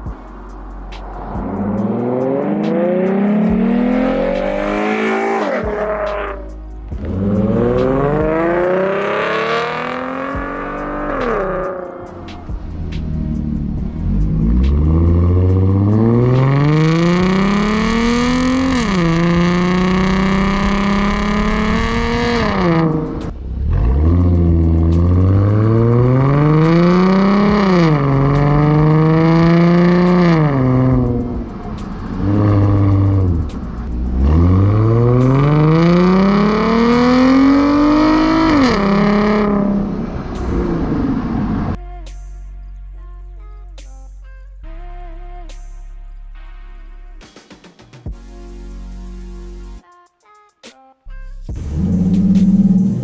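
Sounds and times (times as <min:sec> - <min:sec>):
car engine accelerating hard: 0:00.8 - 0:41.8, 0:51.6 - 0:53.0.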